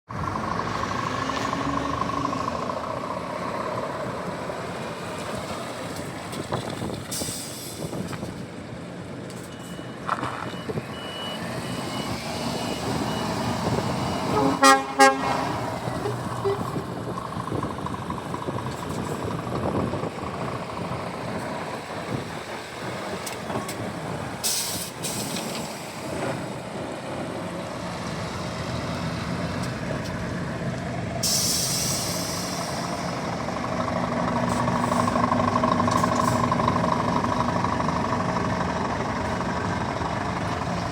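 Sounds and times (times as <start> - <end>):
truck diesel engine running: 0.1 - 7.0, 11.4 - 40.9
truck horn blasts: 14.2 - 16.8
air hissing: 31.2 - 33.0.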